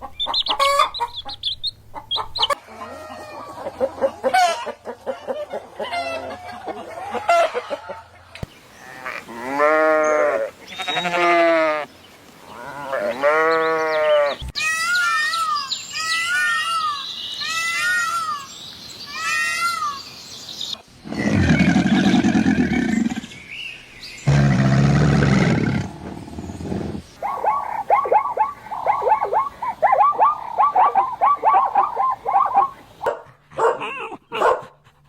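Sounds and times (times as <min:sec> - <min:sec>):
high chirping calls: 0:00.0 - 0:02.6, 0:26.2 - 0:33.1
drawn-out bleating calls: 0:08.8 - 0:11.9, 0:12.5 - 0:14.8
long rough roars: 0:24.3 - 0:27.0.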